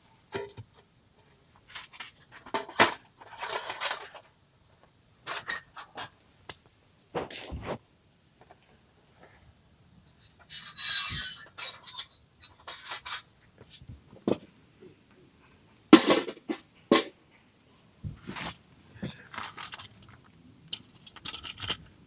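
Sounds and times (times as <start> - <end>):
camp cookware clinking and knocking: 16.0 - 17.1.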